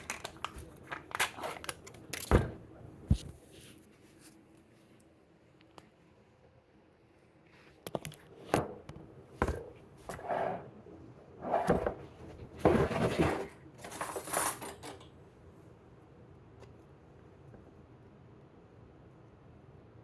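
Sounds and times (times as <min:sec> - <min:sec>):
dishes scraping and rattling: 0:11.4 - 0:15.1.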